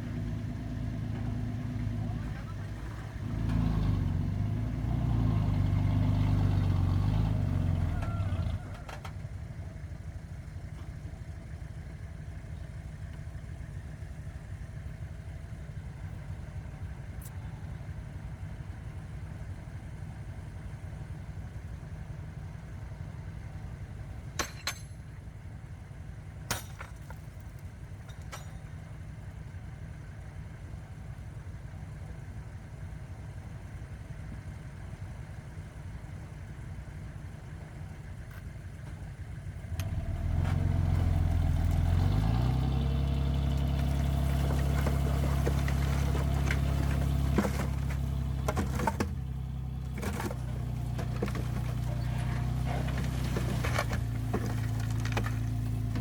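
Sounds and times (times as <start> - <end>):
heavy diesel engine: 0.0 - 56.0
sharp metallic clanks: 24.4 - 25.0, 28.0 - 28.8.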